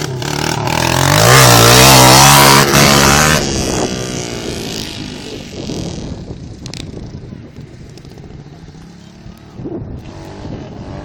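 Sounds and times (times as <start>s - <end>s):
dirt bike engine revving: 0.0s - 6.2s.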